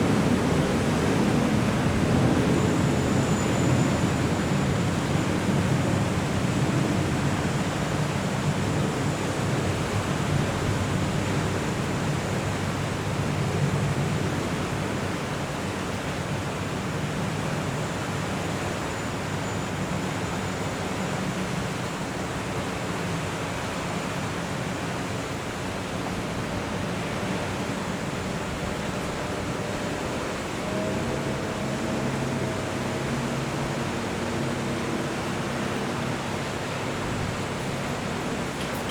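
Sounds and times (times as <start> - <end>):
boat engines humming: 0.0 - 38.9
wind and water rushing: 0.0 - 38.9.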